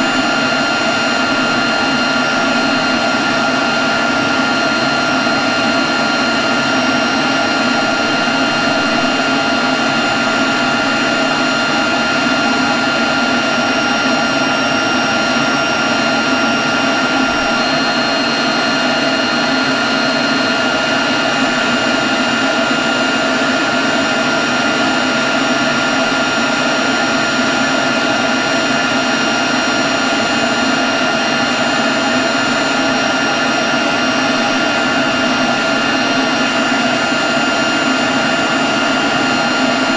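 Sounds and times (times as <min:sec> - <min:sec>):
leaf blower running: 0:00.0 - 0:39.9.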